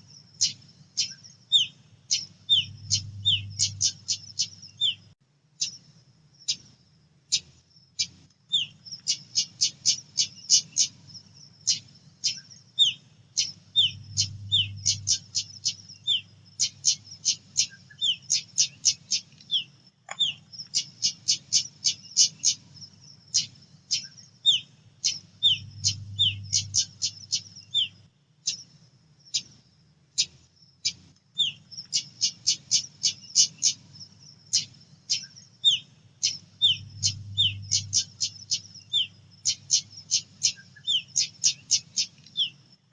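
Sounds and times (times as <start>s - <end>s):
faint low hum: 0.0s - 42.9s
bird calling with sharp chip notes: 11.7s - 22.6s.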